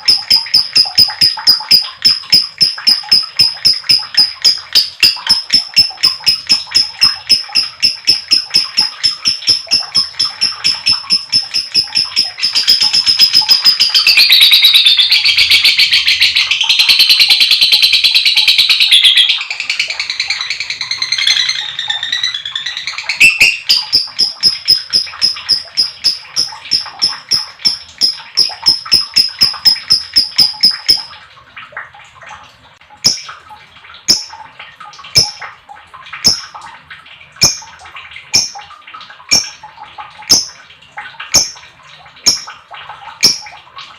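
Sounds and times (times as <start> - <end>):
lovebird chirping chatter: 18.8 - 31.1.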